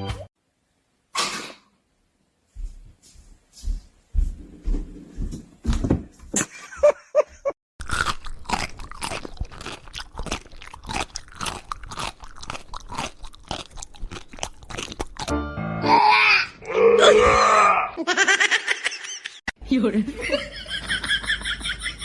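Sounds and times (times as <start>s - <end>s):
pet chewing crunchy food: 7.8s - 15.3s.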